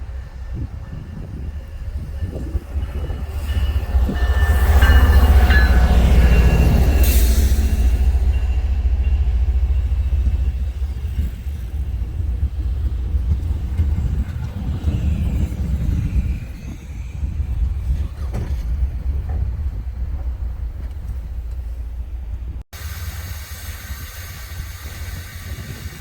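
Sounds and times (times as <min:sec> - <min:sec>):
rail noise: 0:00.0 - 0:26.0
train rumbling past: 0:00.0 - 0:26.0.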